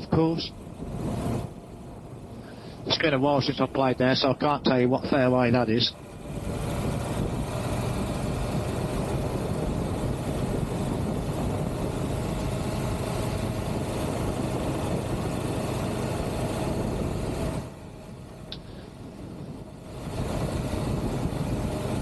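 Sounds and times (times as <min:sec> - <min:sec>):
wind and road noise: 0:00.0 - 0:22.0
motorcycle engine running: 0:06.0 - 0:22.0.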